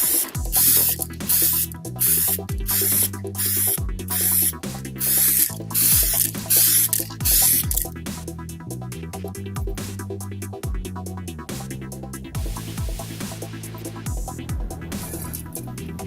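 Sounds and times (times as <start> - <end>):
spray can hissing: 0.0 - 7.9, 15.0 - 15.5
electronic music with kick drum: 0.0 - 16.0.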